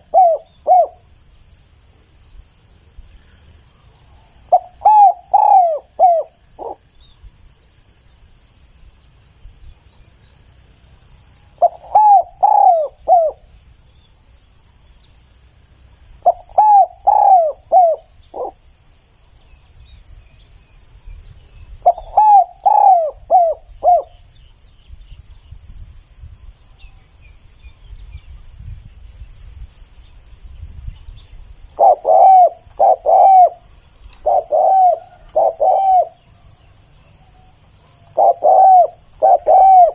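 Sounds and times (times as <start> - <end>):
dove cooing: 0.0 - 1.1, 4.5 - 6.8, 11.6 - 13.5, 16.2 - 18.6, 21.8 - 24.2, 31.8 - 36.5, 37.3 - 39.9
insects trilling: 0.0 - 39.9.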